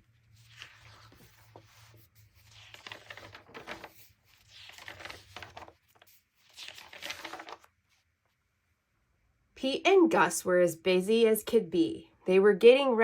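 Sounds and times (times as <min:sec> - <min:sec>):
book pages rustling: 0:00.0 - 0:08.4.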